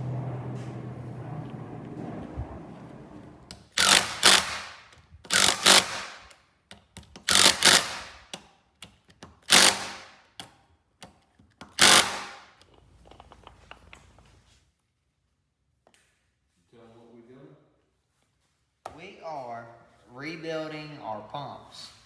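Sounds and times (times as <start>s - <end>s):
power tool running in bursts: 3.8s - 6.2s, 7.3s - 8.1s, 9.5s - 10.1s, 11.8s - 12.4s.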